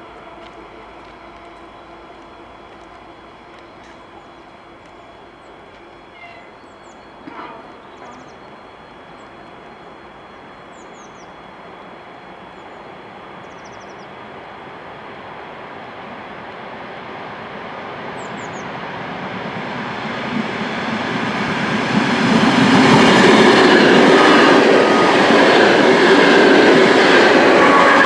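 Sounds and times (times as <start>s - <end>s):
train running: 0.0s - 28.0s.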